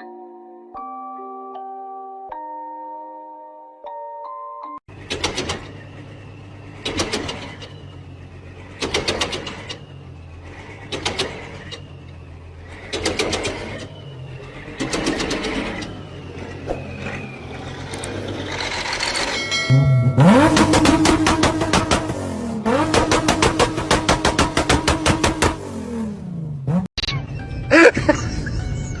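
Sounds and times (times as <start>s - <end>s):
bursts of clattering: 4.9s - 26.0s
engine humming: 4.9s - 26.9s
faint falling squeal: 9.4s - 21.8s.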